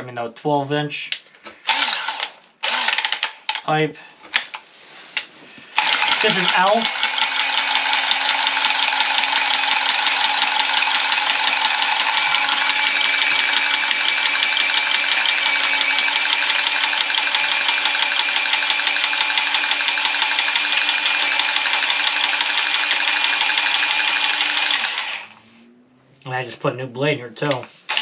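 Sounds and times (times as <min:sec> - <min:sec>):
power saw cutting copper pipe: 0:01.6 - 0:03.6, 0:05.7 - 0:25.4, 0:27.5 - 0:28.0.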